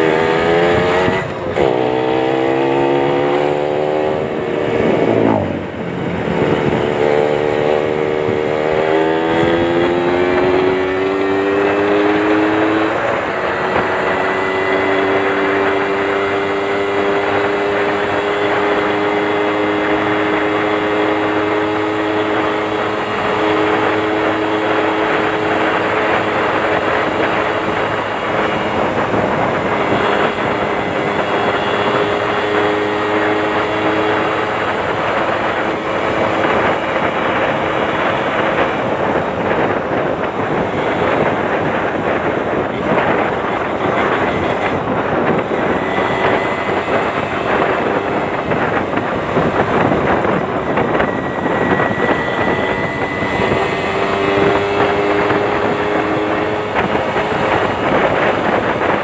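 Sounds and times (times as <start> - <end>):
two-stroke motorcycle engine: 0.0 - 59.0.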